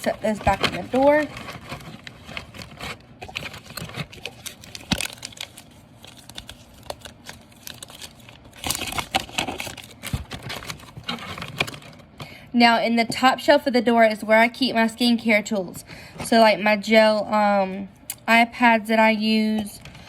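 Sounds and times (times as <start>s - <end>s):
plastic packets crinkling: 0.0s - 12.3s.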